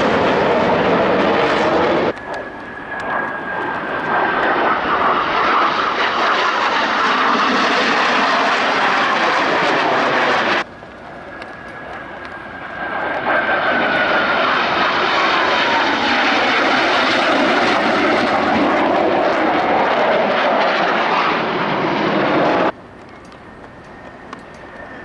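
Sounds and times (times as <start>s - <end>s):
jet flying past: 0.0s - 25.0s.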